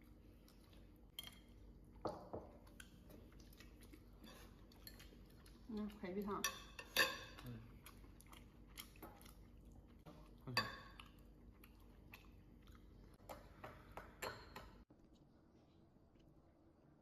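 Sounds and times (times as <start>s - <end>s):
chewing: 0.0s - 6.4s, 7.0s - 13.4s
utensils clinking on dishes: 6.3s - 7.4s.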